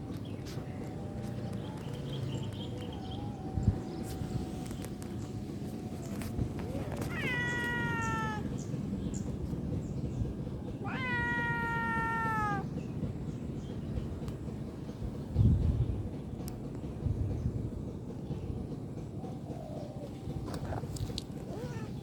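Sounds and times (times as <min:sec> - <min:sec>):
cat meowing: 0:06.0 - 0:08.6, 0:10.8 - 0:12.7, 0:21.5 - 0:22.0.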